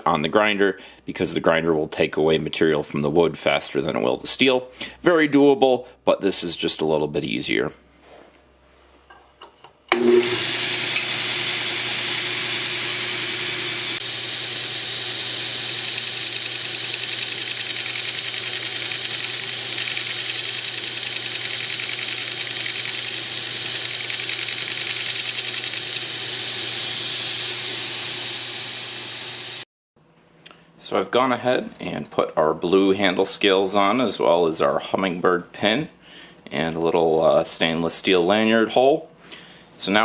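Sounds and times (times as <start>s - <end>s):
electric grinder running: 9.9s - 29.7s.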